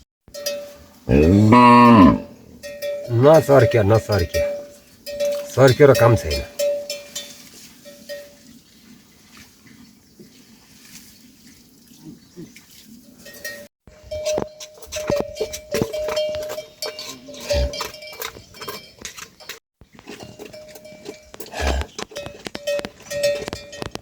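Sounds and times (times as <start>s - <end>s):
livestock bells clinking: 0.3s - 8.6s, 13.2s - 24.0s.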